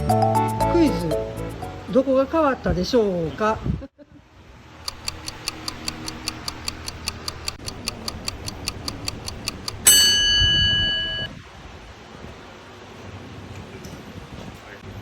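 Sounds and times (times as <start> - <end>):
clock ticking quickly: 4.8 - 11.3
bright bell ding: 9.9 - 11.3.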